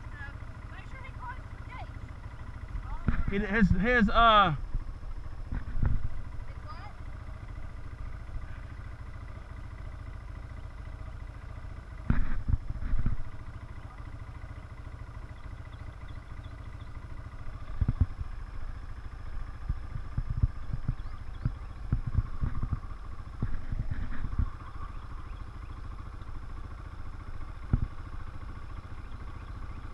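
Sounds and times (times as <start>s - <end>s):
atv engine running: 0.0s - 29.9s.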